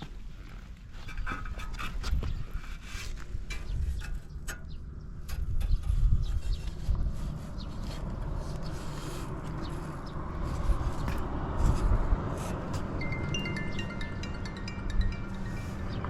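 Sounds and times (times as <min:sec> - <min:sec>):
chime music: 0:12.8 - 0:16.0.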